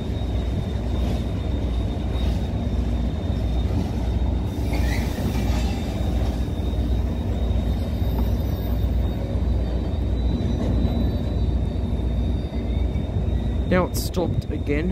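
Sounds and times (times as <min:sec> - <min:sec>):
train wagons rumbling: 0:00.0 - 0:14.9
wheel squeal: 0:00.0 - 0:14.9.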